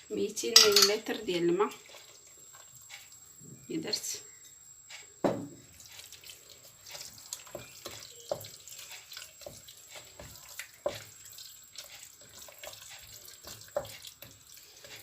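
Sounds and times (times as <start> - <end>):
spoon knocking against pot: 0.6 - 1.0
liquid sloshing in pot: 5.7 - 15.0.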